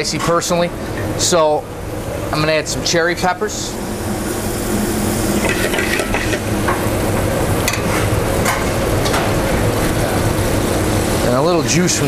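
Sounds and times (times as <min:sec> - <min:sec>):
kitchen exhaust hood noise: 0:00.0 - 0:12.0.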